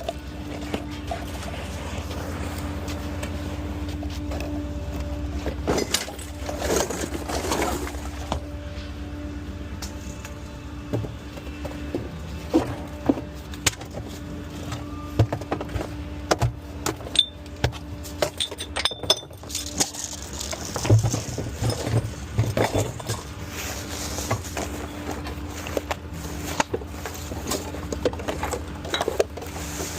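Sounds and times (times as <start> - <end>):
garbage truck idling: 0.0 - 29.9
trash can knocks and rattles: 19.3 - 23.3.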